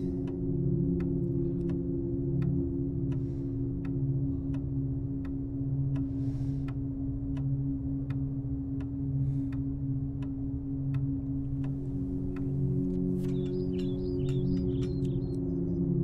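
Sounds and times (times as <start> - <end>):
low drone: 0.0 - 16.0
clock ticking: 6.6 - 15.4.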